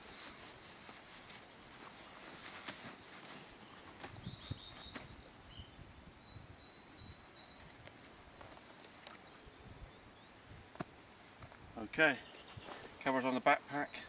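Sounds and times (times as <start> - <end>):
steady background hiss: 0.0 - 14.0
wild birds chirping: 2.0 - 14.0
light clicks and rustles: 7.6 - 9.4.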